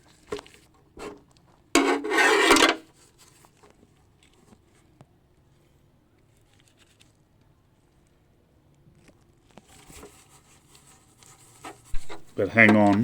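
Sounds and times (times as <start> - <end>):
harsh rasping scrape: 1.8 - 2.9, 11.4 - 12.9.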